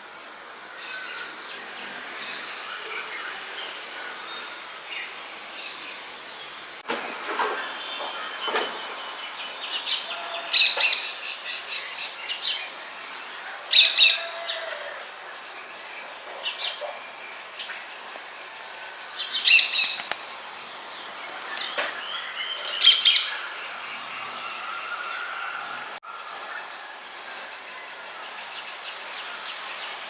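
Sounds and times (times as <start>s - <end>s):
outdoor background hiss: 0.0s - 30.0s
birds chirping: 1.6s - 6.8s, 18.0s - 25.8s.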